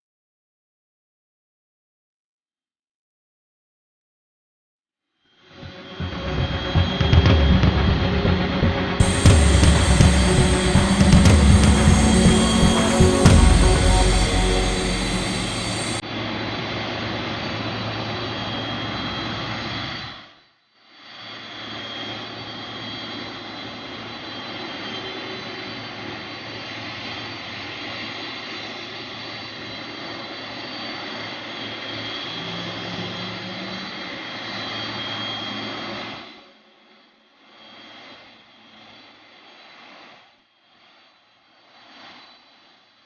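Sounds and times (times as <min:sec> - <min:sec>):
jet engines running: 0:09.0 - 0:16.0.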